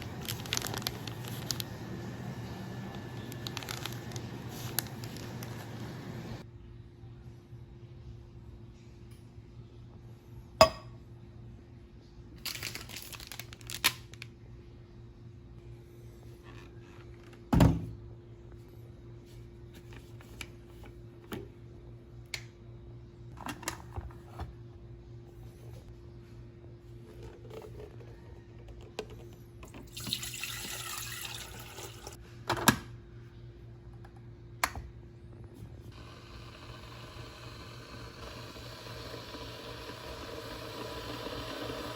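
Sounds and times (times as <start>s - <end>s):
coffee packet crinkling and tearing: 0.0s - 5.9s, 12.4s - 14.3s
hot water pouring into filter: 29.8s - 32.2s, 36.0s - 41.9s.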